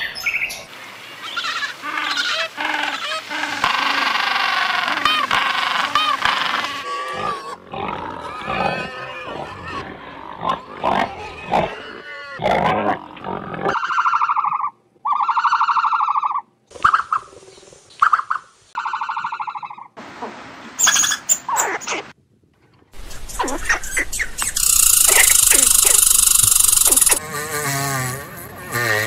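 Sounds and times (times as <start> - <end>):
buzzy drawn-out animal calls: 23.4 - 29.0
sharp high squeaks: 24.4 - 27.2
penguins braying: 24.8 - 27.2.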